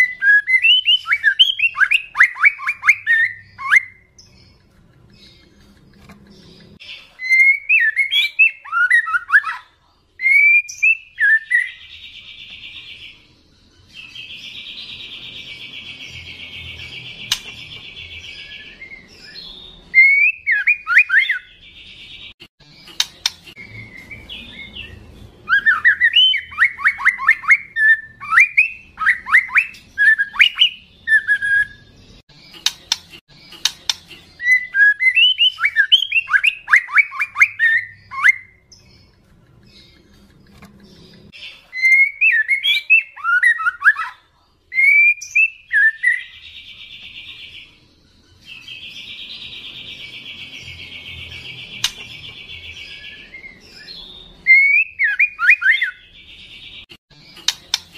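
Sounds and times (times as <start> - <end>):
bird singing whistles: 0.0 - 4.2, 7.2 - 9.6, 10.2 - 11.8, 18.4 - 21.5, 23.6 - 31.9, 34.4 - 38.7, 41.8 - 46.4, 52.6 - 56.0
bird sharp clicks: 17.2 - 17.7, 22.9 - 23.6, 32.6 - 34.2, 51.8 - 52.2, 57.4 - 57.9.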